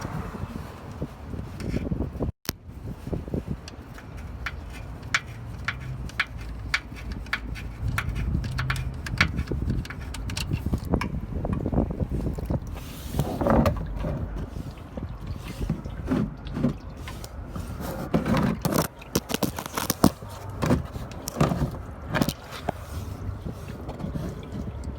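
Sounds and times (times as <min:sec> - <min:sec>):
wind rumble on microphone: 0:00.0 - 0:24.9
wrench clicking on drain plug: 0:04.4 - 0:11.2.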